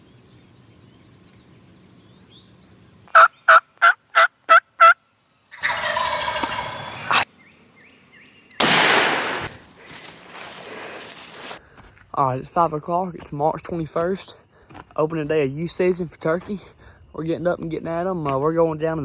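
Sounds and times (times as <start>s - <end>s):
turkey gobble: 3.2s - 7.2s
turkey yelps: 3.2s - 7.2s
loud noisy blast: 8.6s - 9.6s.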